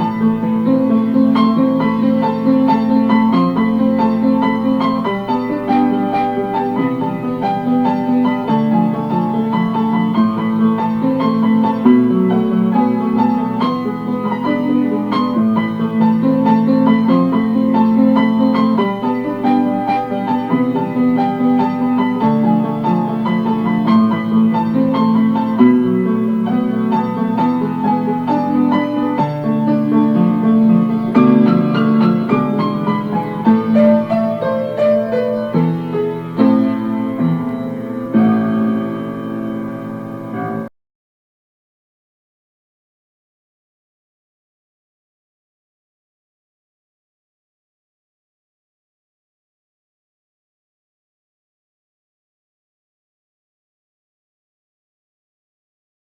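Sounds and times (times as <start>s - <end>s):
piano music: 0.0s - 40.7s.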